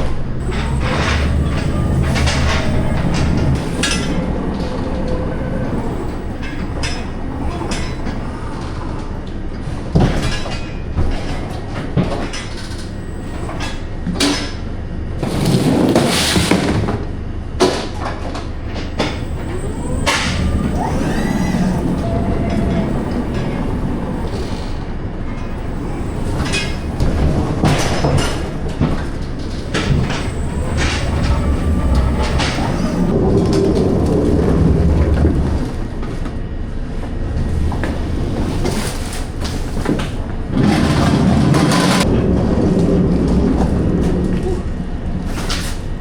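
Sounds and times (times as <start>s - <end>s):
truck engine rumbling: 0.0s - 14.0s, 18.6s - 46.0s
knocks and rattles: 0.4s - 8.2s, 25.8s - 35.9s
hissing rush: 19.2s - 24.8s, 30.0s - 33.2s.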